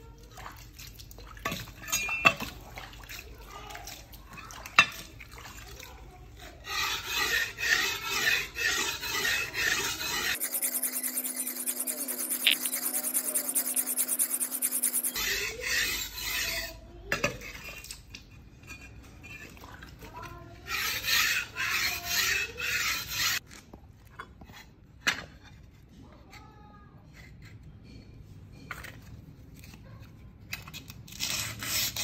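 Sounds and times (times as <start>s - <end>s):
knife being sharpened: 7.2s - 15.4s.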